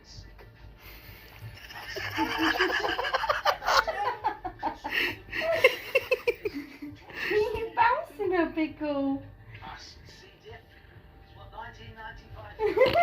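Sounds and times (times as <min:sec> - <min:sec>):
person laughing: 0:01.6 - 0:07.3, 0:12.6 - 0:13.0.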